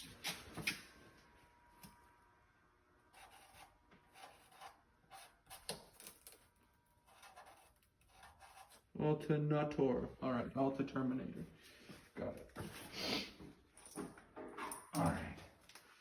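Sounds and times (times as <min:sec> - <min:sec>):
pen scratching on paper: 0:03.1 - 0:05.7, 0:07.1 - 0:08.9.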